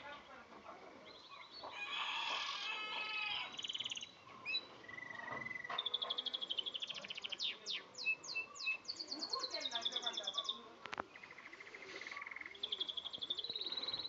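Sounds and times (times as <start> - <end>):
canary singing: 1.1 - 14.0.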